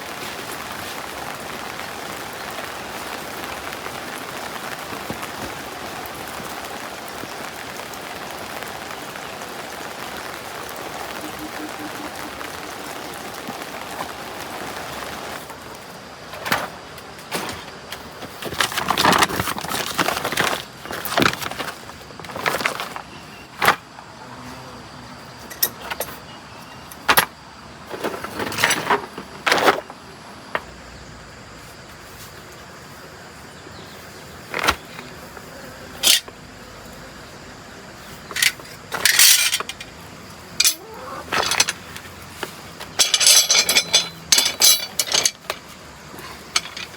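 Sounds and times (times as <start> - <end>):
rain hiss: 0.0 - 46.9
metal tools clanking and scraping: 38.3 - 39.9, 40.6 - 46.9.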